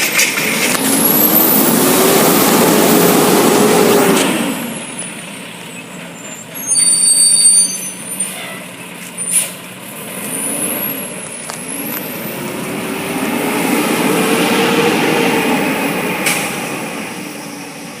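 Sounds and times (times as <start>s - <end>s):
truck diesel engine revving: 0.0s - 18.0s
air brakes hissing and squealing: 4.1s - 12.6s, 15.8s - 18.0s.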